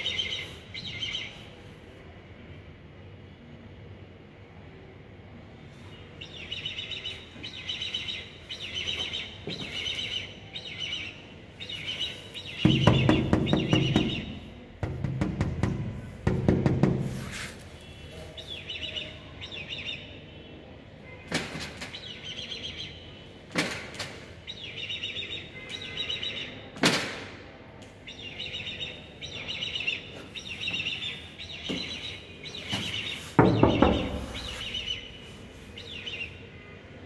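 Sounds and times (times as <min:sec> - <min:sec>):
birds chirping in trilling bursts: 0:00.0 - 0:01.6, 0:05.9 - 0:14.8, 0:17.8 - 0:20.6, 0:21.9 - 0:23.4, 0:24.3 - 0:26.7, 0:28.0 - 0:37.0
sharp knocks: 0:12.6 - 0:17.3, 0:33.4 - 0:34.6.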